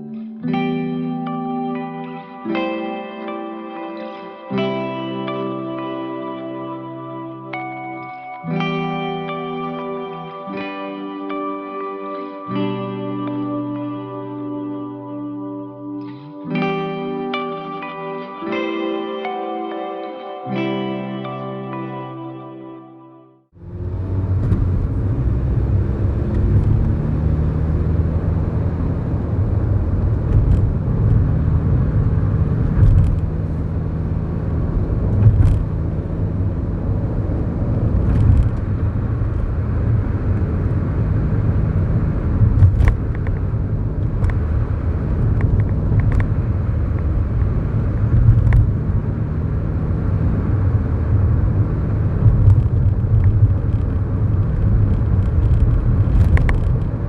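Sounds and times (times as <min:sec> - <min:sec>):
road rumble: 0:23.5 - 0:57.0
car engine running: 0:23.6 - 0:57.0.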